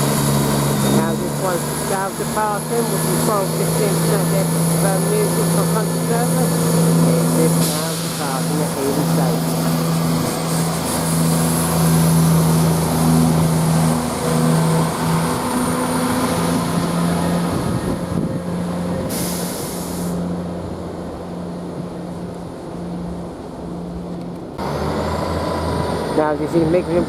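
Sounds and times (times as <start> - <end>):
diesel train engine droning: 0.0 - 27.0
air hiss: 7.6 - 8.5, 19.1 - 20.2.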